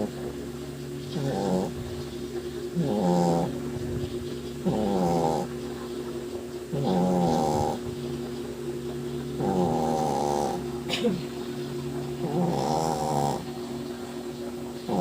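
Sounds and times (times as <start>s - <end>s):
dog snoring loudly: 0.0s - 0.3s, 1.0s - 5.8s, 6.7s - 8.0s, 9.4s - 10.9s, 12.1s - 13.8s, 14.8s - 15.0s.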